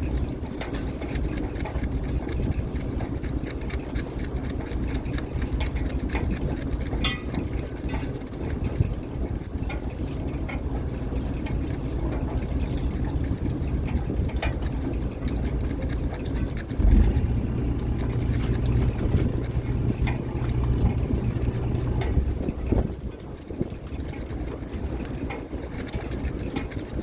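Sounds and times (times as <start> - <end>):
boat engine humming: 16.7 - 23.7.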